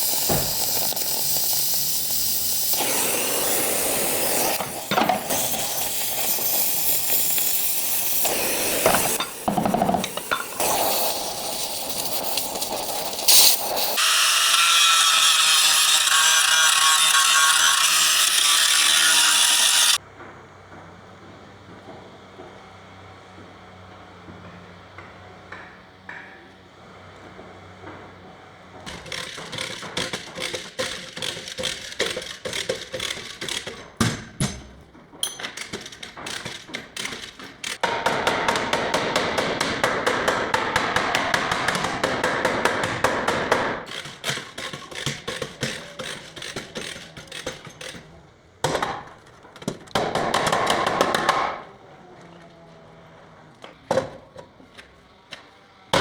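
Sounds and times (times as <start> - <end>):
hammer striking sheet metal: 0.2 - 0.9, 37.8 - 43.8.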